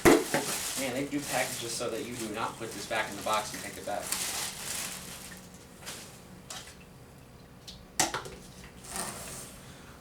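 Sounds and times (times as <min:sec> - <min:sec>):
packaging rustling: 0:00.2 - 0:06.1.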